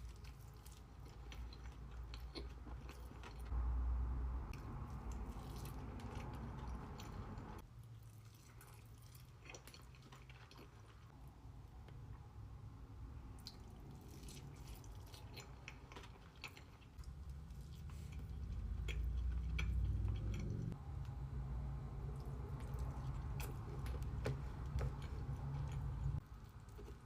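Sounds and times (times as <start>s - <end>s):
chewing and biting food: 0.0s - 3.5s, 4.6s - 11.2s, 13.4s - 20.8s, 22.0s - 27.0s
low rumble: 3.5s - 7.6s, 17.0s - 26.2s.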